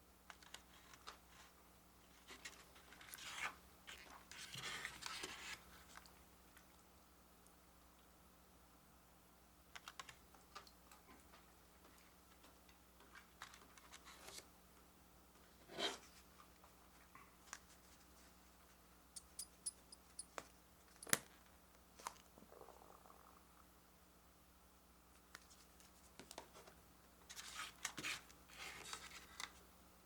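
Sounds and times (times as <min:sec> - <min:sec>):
small objects clicking and tapping: 0:19.2 - 0:21.3.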